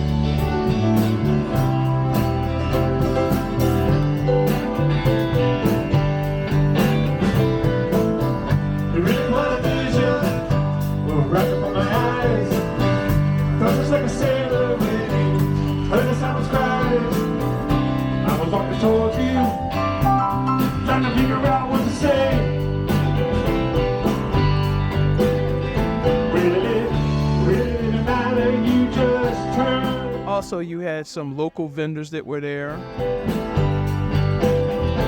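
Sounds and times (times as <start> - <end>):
steady drum beat: 0.0 - 30.8
guitar: 0.0 - 35.0
person singing: 8.9 - 23.0, 26.1 - 32.6.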